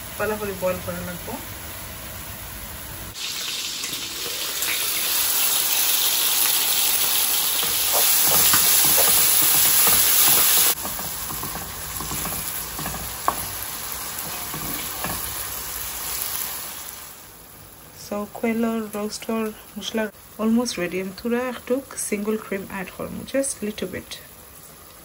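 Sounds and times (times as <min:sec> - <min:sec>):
masala sizzling in oil: 0:00.0 - 0:25.0
wooden spatula scraping wok: 0:06.9 - 0:15.7.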